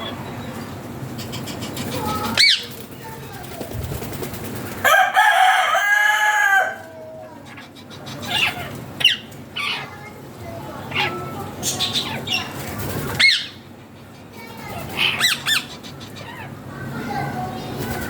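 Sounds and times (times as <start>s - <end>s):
parrots screeching: 7.5s - 9.9s, 14.8s - 16.6s.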